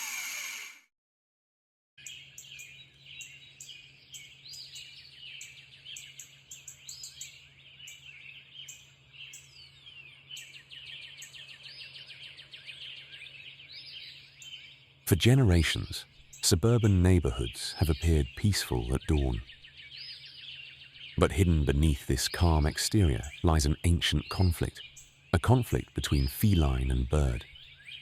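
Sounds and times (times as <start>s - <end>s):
songbirds chirping and trilling: 2.0s - 28.0s
faint low hum: 21.2s - 24.8s.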